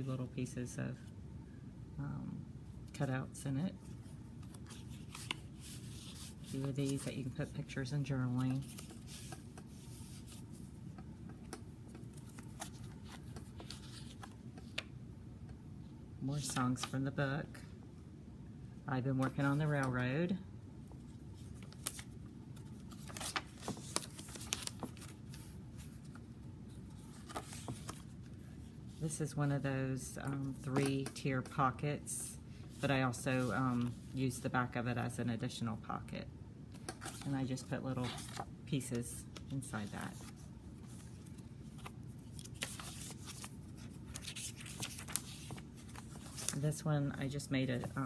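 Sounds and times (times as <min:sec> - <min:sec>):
paper rustling: 0:03.8 - 0:07.3, 0:08.3 - 0:10.8, 0:11.4 - 0:14.9, 0:21.4 - 0:29.0, 0:36.8 - 0:38.5, 0:39.3 - 0:46.8, 0:47.6 - 0:48.0.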